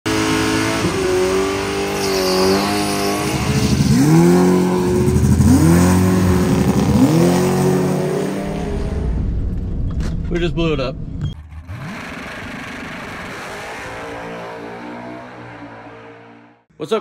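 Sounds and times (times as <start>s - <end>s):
drag car engine accelerating: 0.1s - 9.2s, 11.3s - 16.7s.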